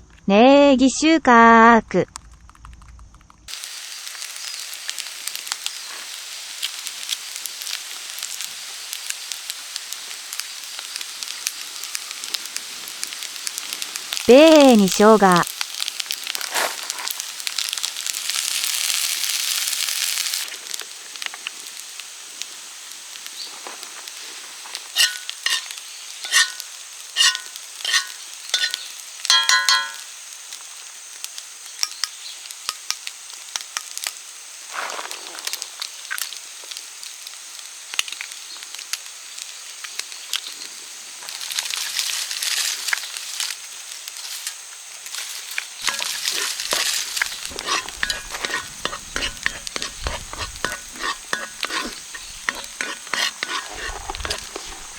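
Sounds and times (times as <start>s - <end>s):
rice sizzling in a frying pan: 3.5s - 54.9s
utensil clinking on pan: 25.0s - 30.1s, 31.8s - 33.0s, 45.8s - 54.9s.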